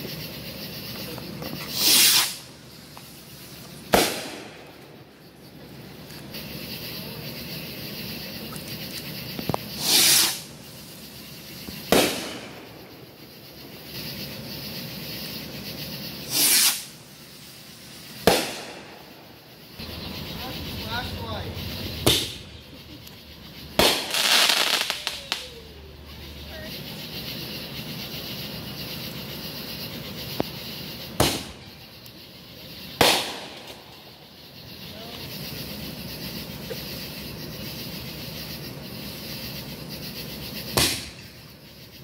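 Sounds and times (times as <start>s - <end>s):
firework whooshing launch: 1.5s - 5.0s, 9.6s - 11.0s, 11.6s - 13.0s, 16.2s - 19.3s, 21.8s - 22.6s, 23.7s - 25.6s, 31.1s - 31.7s, 33.0s - 34.0s, 40.6s - 41.3s
firework bang: 3.9s - 4.9s, 11.8s - 12.8s, 18.2s - 19.2s, 21.8s - 22.6s, 23.7s - 25.5s, 31.2s - 31.7s, 33.0s - 33.9s, 40.7s - 41.3s.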